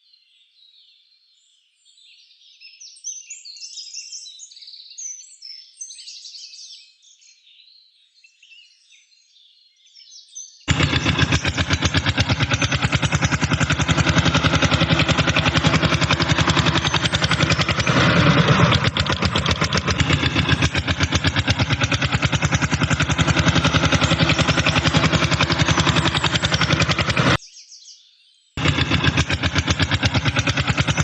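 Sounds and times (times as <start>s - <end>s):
engine idling chugging: 10.7s - 27.4s, 28.6s - 31.0s.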